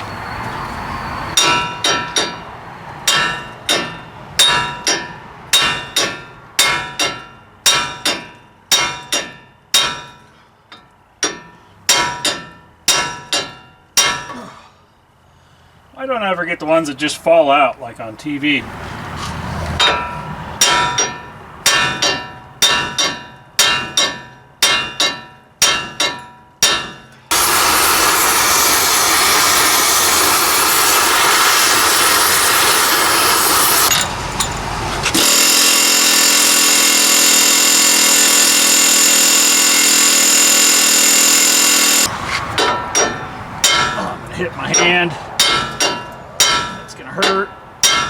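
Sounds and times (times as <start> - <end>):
loud steady tool noise: 27.3 - 34.0, 35.0 - 42.2.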